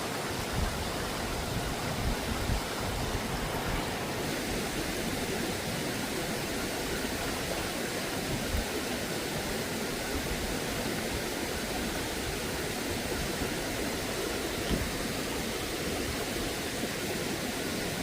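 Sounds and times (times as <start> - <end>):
stream water flowing: 0.0 - 18.0.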